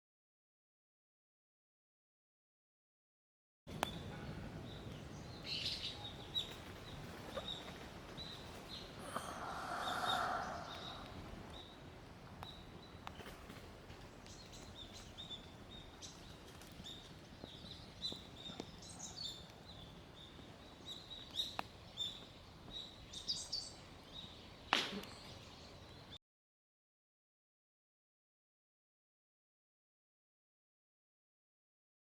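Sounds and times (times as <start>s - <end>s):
small birds chirping: 3.7s - 26.2s.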